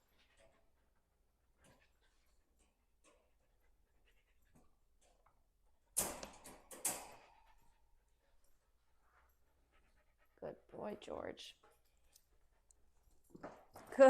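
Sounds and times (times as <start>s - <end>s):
metal dog crate clanking: 6.0s - 7.5s.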